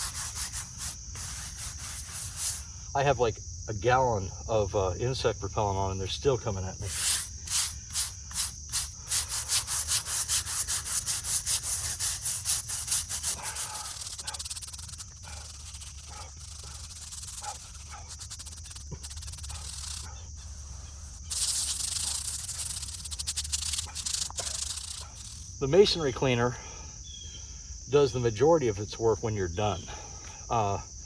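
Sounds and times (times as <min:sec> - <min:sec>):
stiff brush scrubbing stone: 0:00.0 - 0:02.7, 0:06.8 - 0:25.5.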